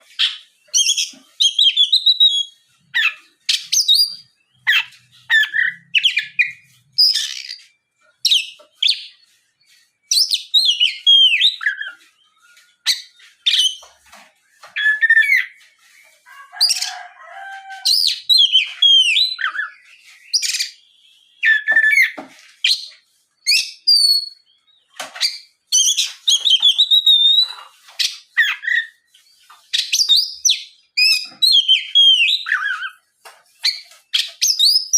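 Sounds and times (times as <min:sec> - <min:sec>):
bird singing whistled phrases: 0:17.8 - 0:22.8, 0:25.8 - 0:27.6, 0:34.4 - 0:34.9.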